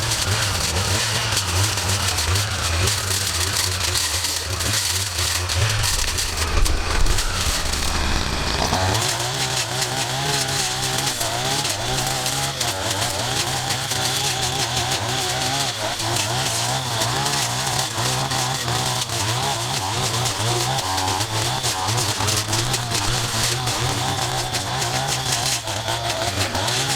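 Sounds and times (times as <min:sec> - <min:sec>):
small gas engine running: 0:00.0 - 0:26.9.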